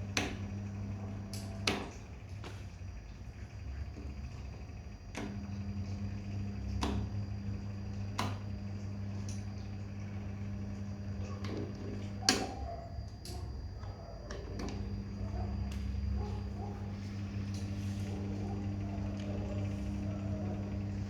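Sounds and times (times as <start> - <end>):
dryer humming: 0.0 - 21.0.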